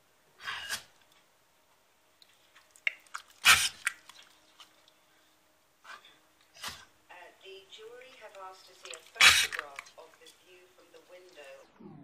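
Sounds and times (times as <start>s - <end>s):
dog sneezing: 0.4s - 0.9s, 3.4s - 3.9s, 5.9s - 6.9s, 9.2s - 9.6s.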